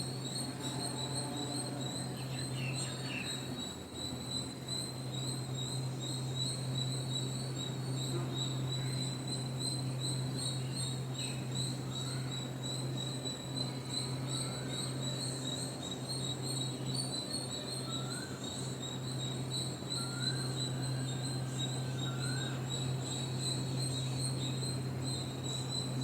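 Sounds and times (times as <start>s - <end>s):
crickets trilling: 0.0s - 26.0s.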